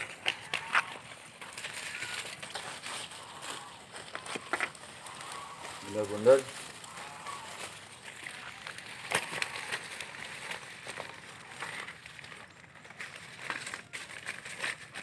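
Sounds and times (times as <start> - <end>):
leaves rustling and crinkling: 0.0 - 15.0
leaf snapping: 8.5 - 12.5.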